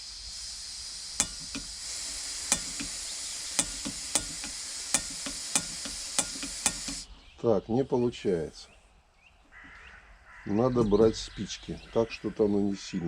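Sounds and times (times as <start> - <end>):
gas hissing from stove valve: 0.0 - 7.2
piezo igniter clicking: 0.0 - 7.2.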